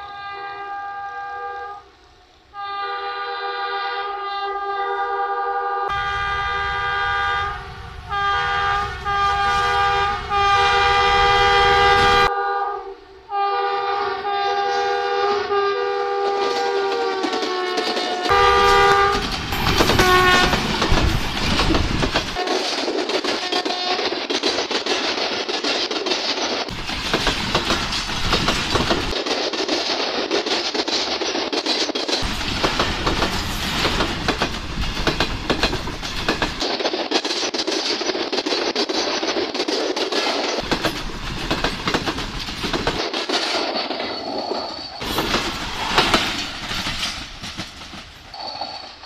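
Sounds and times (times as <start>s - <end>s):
train rumble: 5.9s - 12.3s, 13.8s - 49.0s
wheels clacking over rail joints: 16.1s - 49.0s.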